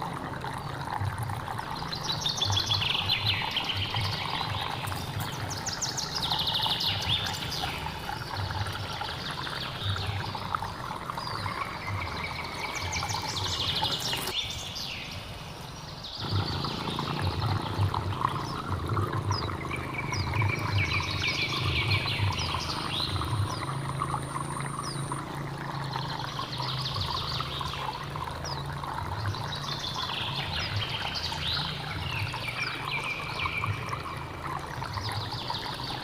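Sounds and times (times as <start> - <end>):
stream rushing: 0.0 - 36.0
birds singing fast trills: 1.8 - 36.0.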